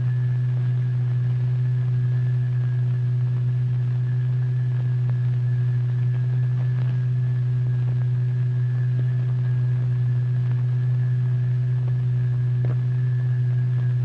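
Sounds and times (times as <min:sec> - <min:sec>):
steady loud low tone: 0:00.0 - 0:14.0.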